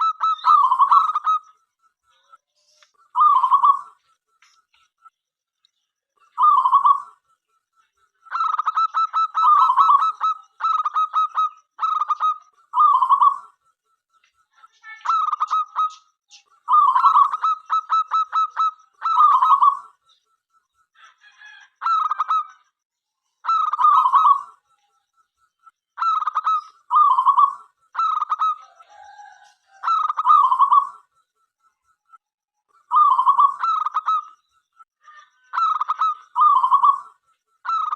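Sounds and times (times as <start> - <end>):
dove cooing: 0.0 - 1.4, 3.1 - 4.0, 6.4 - 7.2, 8.3 - 13.5, 16.7 - 19.9, 23.5 - 24.6, 26.0 - 31.1, 32.9 - 34.3, 35.6 - 37.9.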